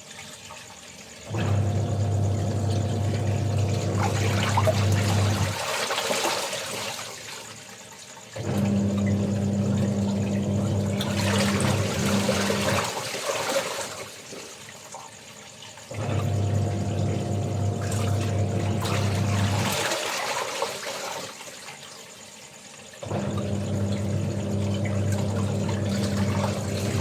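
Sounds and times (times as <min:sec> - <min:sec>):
water running and splashing: 0:00.0 - 0:27.0.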